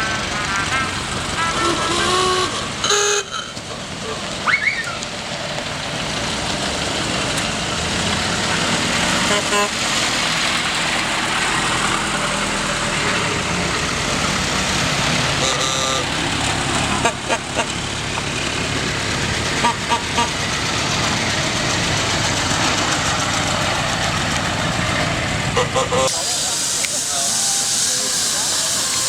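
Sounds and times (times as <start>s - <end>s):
motor vehicle running: 0.0s - 29.0s
short horn toot: 0.4s - 3.5s, 15.4s - 16.1s.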